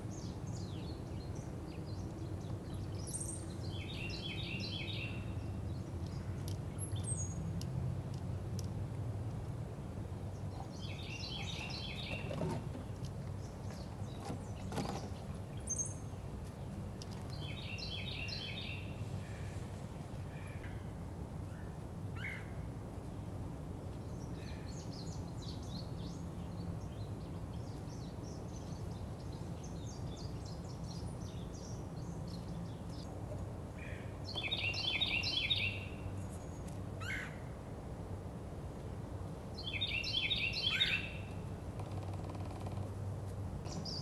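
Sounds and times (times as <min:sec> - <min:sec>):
birds chirping: 0:00.0 - 0:07.5, 0:10.3 - 0:19.5, 0:33.8 - 0:37.3, 0:39.6 - 0:42.8, 0:43.6 - 0:44.0
trilled birdsong: 0:00.0 - 0:08.7, 0:10.1 - 0:19.6, 0:23.2 - 0:37.4, 0:39.5 - 0:44.0
low background hum: 0:00.0 - 0:44.0.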